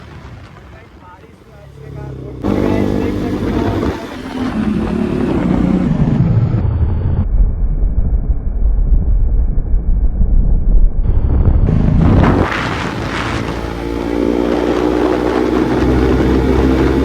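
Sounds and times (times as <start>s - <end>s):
motorcycle engine revving: 1.3s - 7.1s, 11.0s - 17.0s
wind noise on microphone: 2.4s - 17.0s.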